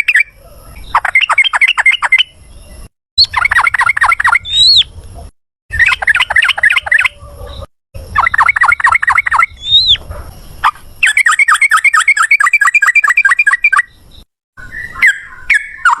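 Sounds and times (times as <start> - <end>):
rising whistles: 8.1 - 10.0.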